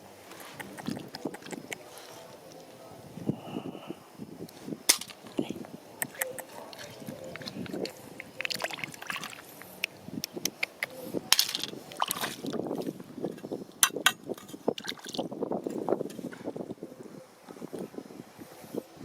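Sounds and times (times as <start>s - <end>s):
stones knocking together: 4.9s - 5.4s, 10.5s - 12.6s
river water splashing: 6.2s - 10.0s, 11.3s - 12.6s.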